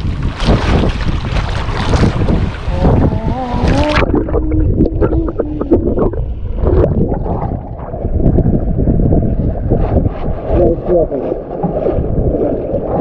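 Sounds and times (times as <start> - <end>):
wind buffeting microphone: 0.0 - 13.0
wavering voice-like tone: 2.7 - 6.2.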